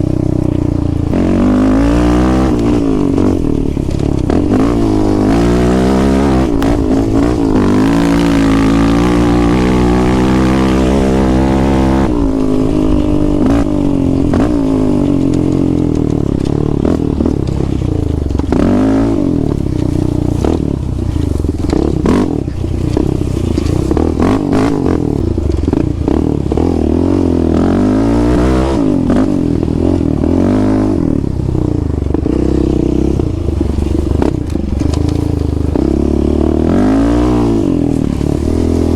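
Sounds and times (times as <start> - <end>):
quad engine revving: 0.0 - 38.9.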